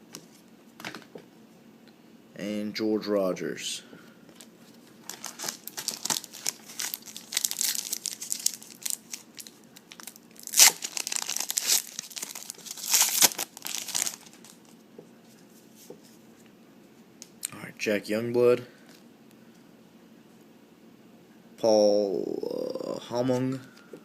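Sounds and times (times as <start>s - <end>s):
foil pack tearing and crinkling: 5.0s - 14.7s.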